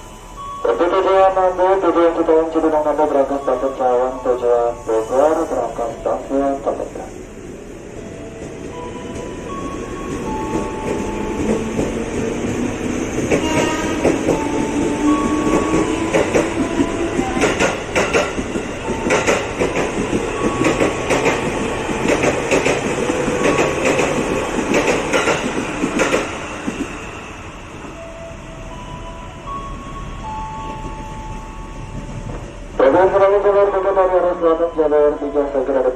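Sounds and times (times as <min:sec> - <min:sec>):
train wheels clacking over rail joints: 0:10.5 - 0:26.9.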